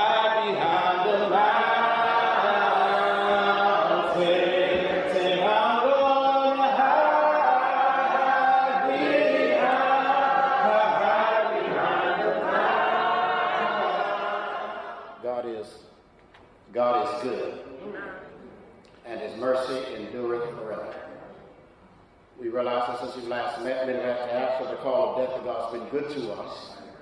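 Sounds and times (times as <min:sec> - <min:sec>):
choir singing a cappella: 0:00.0 - 0:15.2.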